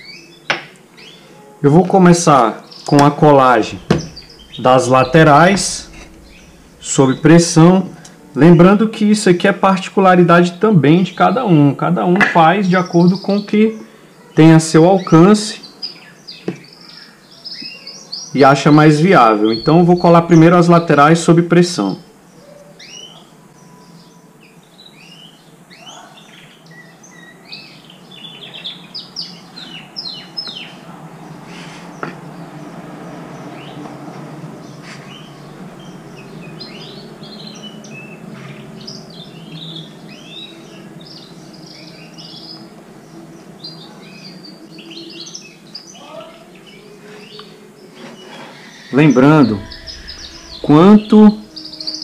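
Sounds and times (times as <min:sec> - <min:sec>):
small birds chirping: 0:00.0 - 0:08.8, 0:10.4 - 0:52.0
steady low hum: 0:02.3 - 0:09.4, 0:19.0 - 0:21.2, 0:32.2 - 0:45.0, 0:49.2 - 0:52.0
sharp knock: 0:03.7 - 0:08.2.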